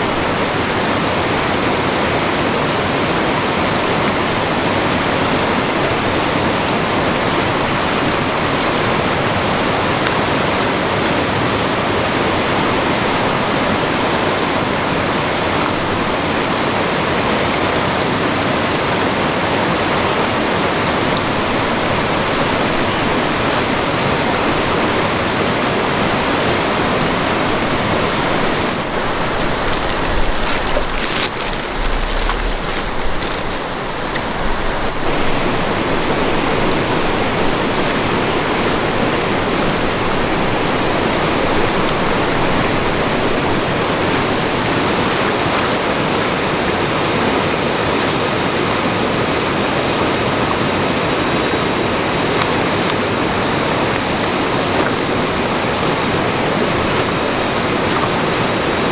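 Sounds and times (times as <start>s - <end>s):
fast-flowing stream: 0.0s - 58.9s
low bumps: 27.6s - 38.4s.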